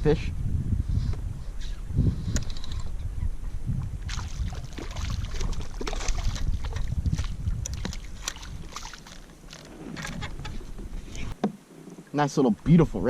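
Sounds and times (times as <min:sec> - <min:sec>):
wind rumbling on microphone: 0:00.0 - 0:13.0
water splashing: 0:04.0 - 0:12.2
knocks and clicks on a kayak: 0:05.8 - 0:11.6.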